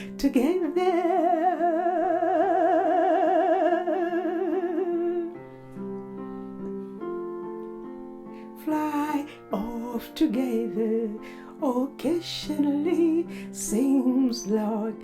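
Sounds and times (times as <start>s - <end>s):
person singing with vibrato: 0.0s - 5.4s, 8.4s - 15.0s
keyboard chords: 4.3s - 12.0s.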